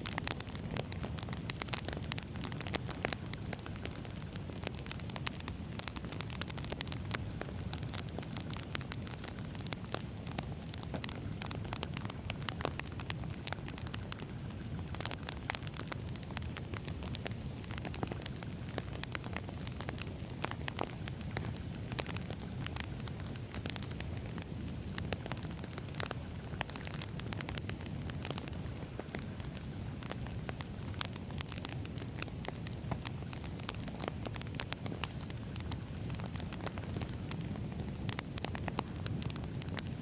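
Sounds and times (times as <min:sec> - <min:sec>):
burning logs crackling: 0:00.0 - 0:40.0
fire flames rumbling: 0:00.0 - 0:40.0.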